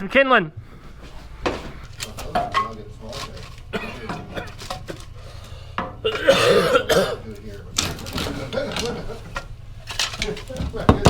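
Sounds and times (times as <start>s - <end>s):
low voices: 0.0s - 11.0s
clinks and clatter of handled things: 1.5s - 6.0s, 7.3s - 11.0s.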